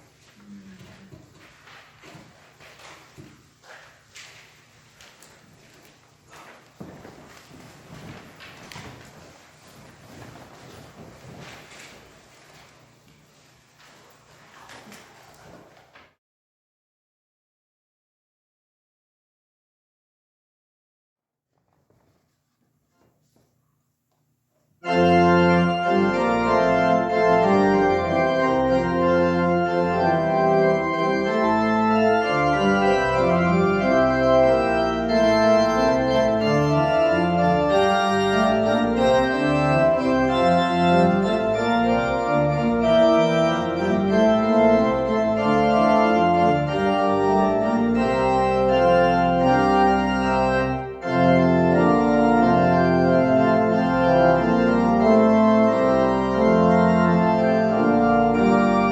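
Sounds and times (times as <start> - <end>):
church organ playing chords: 24.8 - 58.9.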